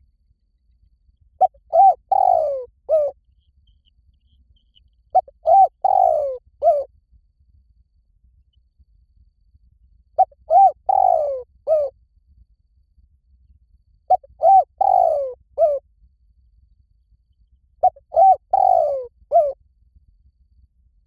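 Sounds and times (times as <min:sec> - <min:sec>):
dove cooing: 0:01.4 - 0:03.2, 0:05.2 - 0:06.9, 0:10.2 - 0:11.9, 0:14.1 - 0:15.8, 0:17.8 - 0:19.6.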